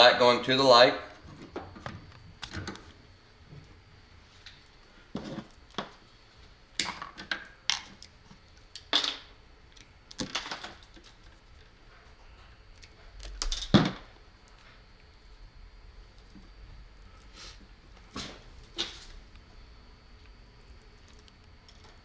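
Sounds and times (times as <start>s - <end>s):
tools and wire clicking: 20.8s - 22.0s.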